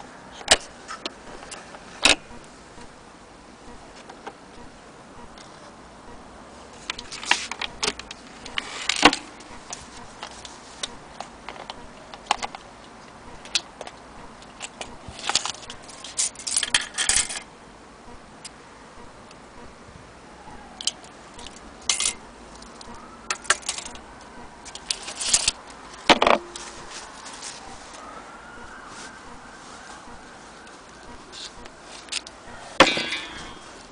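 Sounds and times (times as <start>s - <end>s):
metal clock parts clinking: 14.6s - 17.5s, 20.8s - 24.0s, 32.0s - 33.6s.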